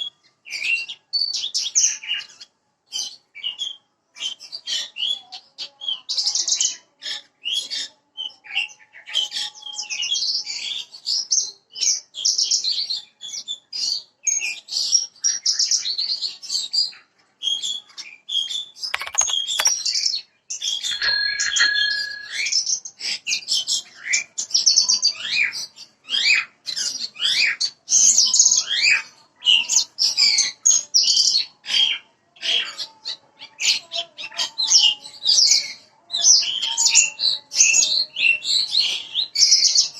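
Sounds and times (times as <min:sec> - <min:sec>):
lark singing chirps and trills: 0:20.9 - 0:22.5.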